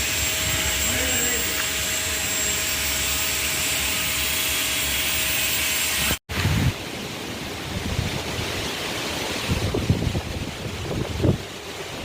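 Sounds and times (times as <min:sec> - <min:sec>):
wind buffeting microphone: 0:09.3 - 0:12.0.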